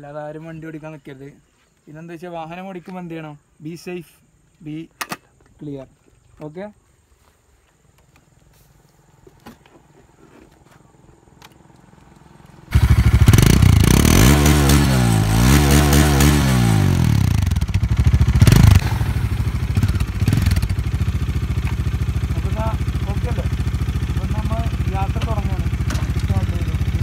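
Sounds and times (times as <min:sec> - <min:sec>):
motorcycle engine starting and revving: 0:11.2 - 0:27.0.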